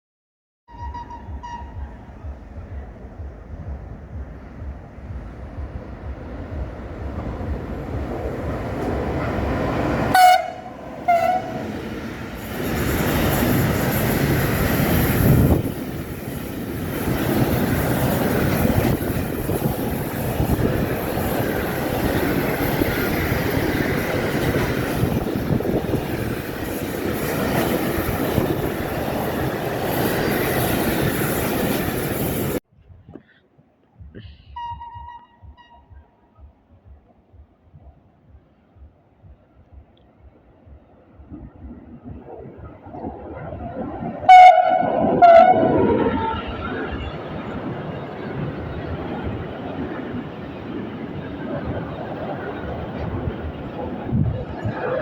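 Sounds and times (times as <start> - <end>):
train horn blasts: 0.7 - 2.1, 9.6 - 11.8, 34.5 - 36.1, 44.3 - 46.6
train wagons rumbling and clattering: 0.7 - 33.3, 39.3 - 55.0.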